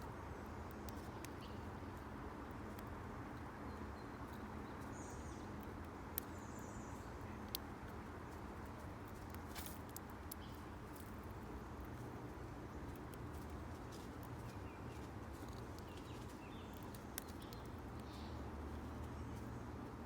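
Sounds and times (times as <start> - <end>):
birds pecking taps: 12.8 - 20.0.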